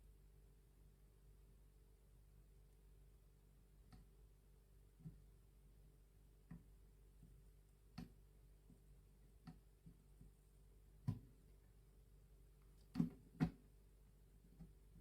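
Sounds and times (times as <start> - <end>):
faint steady hum: 0.0 - 15.0
faint clicks and taps: 3.8 - 4.2, 4.9 - 5.4, 6.4 - 11.6.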